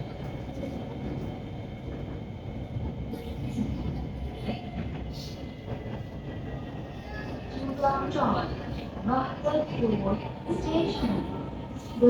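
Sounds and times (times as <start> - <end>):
metro train interior rumble: 0.0 - 12.0.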